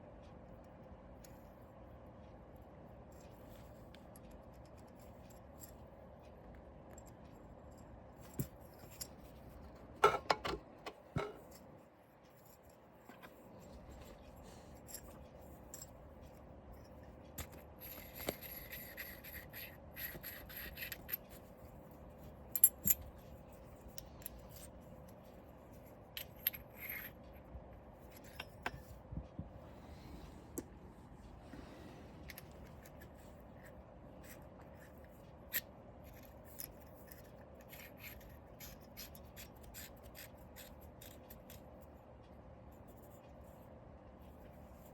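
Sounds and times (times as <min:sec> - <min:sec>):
small parts clicking and knocking: 0:14.8 - 0:21.5, 0:22.2 - 0:29.0, 0:32.2 - 0:41.9.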